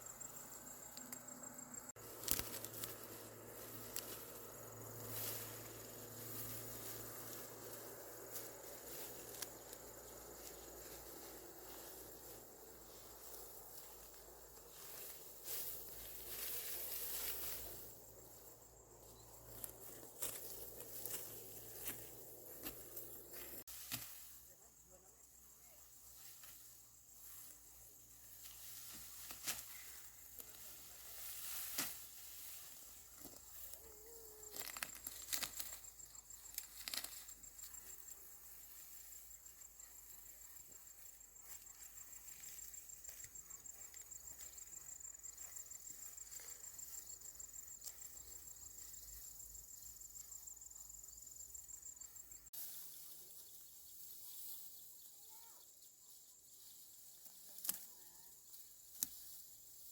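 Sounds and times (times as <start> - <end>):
rustles and clicks: 0.1 - 24.5, 26.0 - 48.4
insect trilling: 33.3 - 38.3.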